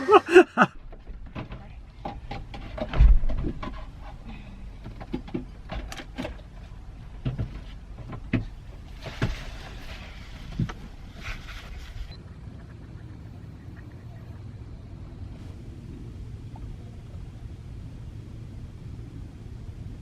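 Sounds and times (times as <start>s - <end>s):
heavy thump: 2.8s - 3.7s.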